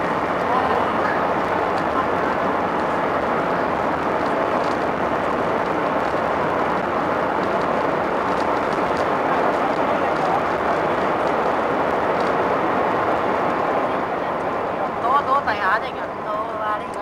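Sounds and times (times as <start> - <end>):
airliner cabin roar on landing: 0.0 - 17.0.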